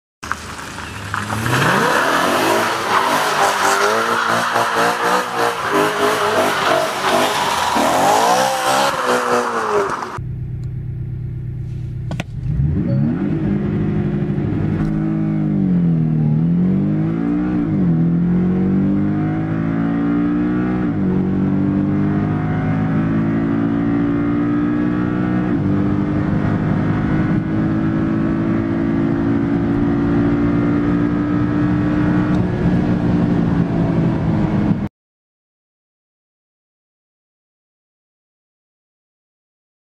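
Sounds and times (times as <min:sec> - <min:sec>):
car engine revving and accelerating: 0:01.1 - 0:10.2, 0:12.3 - 0:34.8.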